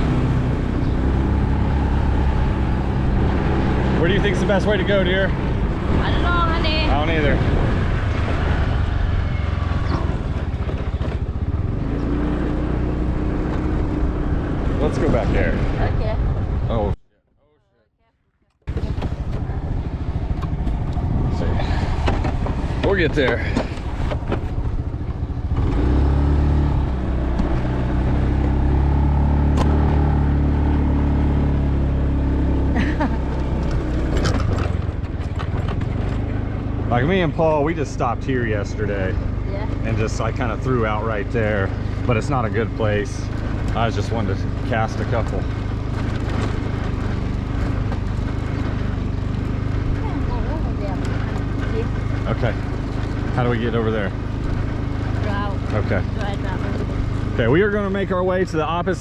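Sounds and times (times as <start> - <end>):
wind rumbling on microphone: 0.0 - 12.1, 18.7 - 25.8
small motorbike engine running: 18.7 - 29.9, 32.2 - 59.0.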